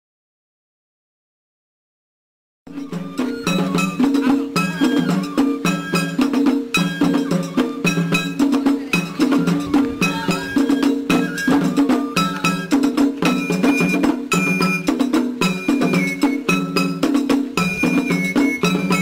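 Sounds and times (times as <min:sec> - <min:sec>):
struck percussion rhythm: 0:02.7 - 0:19.0.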